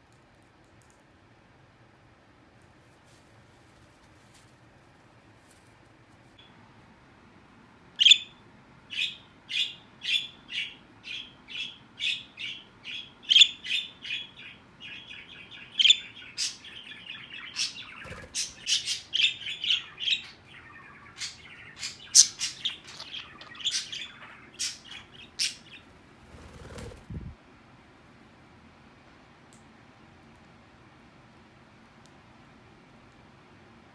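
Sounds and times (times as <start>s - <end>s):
parrots chirping: 8.9s - 27.1s.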